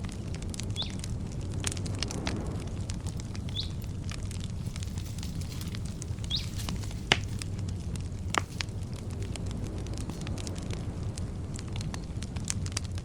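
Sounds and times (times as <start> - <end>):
campfire crackling: 0.0 - 13.0
low steady rumble: 0.0 - 13.0
wood snapping in fire: 0.0 - 13.0
bird chirping: 0.8 - 1.0, 3.3 - 4.0, 4.6 - 7.6.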